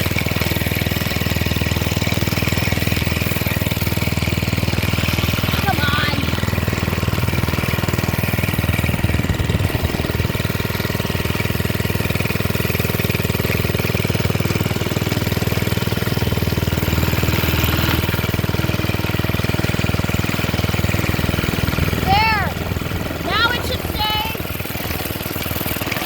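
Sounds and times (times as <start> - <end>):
minibike engine running: 0.0 - 26.0.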